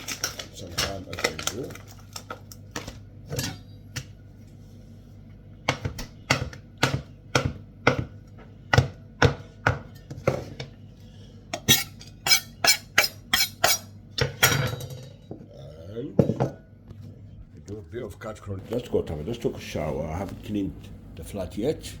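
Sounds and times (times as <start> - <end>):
knife chopping on hard surface: 5.6 - 10.7.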